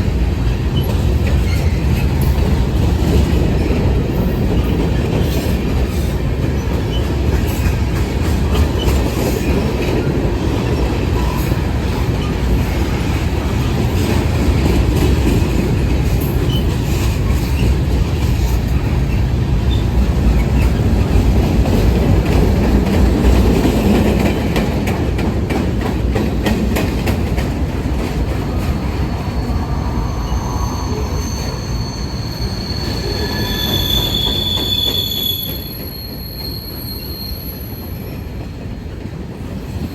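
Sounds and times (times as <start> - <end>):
train wheels rumbling on rails: 0.0 - 39.9
high-pitched wheel squeal: 29.0 - 38.1.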